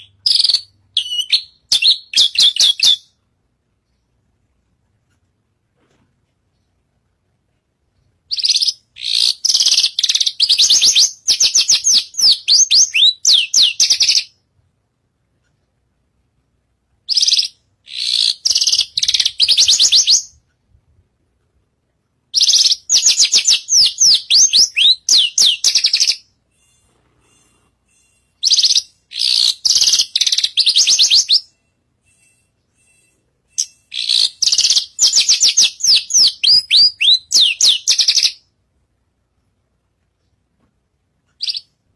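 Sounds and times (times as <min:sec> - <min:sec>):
bird high chattering song: 0:00.0 - 0:03.2, 0:08.3 - 0:14.4, 0:17.1 - 0:20.4, 0:22.4 - 0:38.5, 0:41.4 - 0:41.8.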